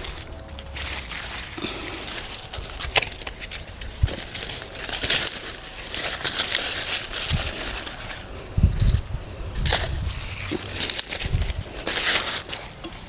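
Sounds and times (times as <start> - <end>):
dry corn stalks rustling: 0.0 - 13.0
stalks snapping: 0.0 - 13.0.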